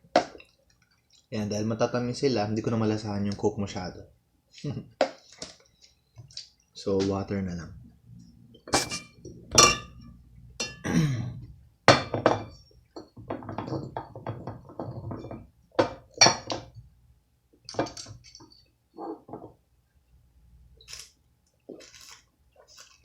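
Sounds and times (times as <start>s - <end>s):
glassware and dishes clinking: 8.7s - 11.0s, 11.9s - 16.7s.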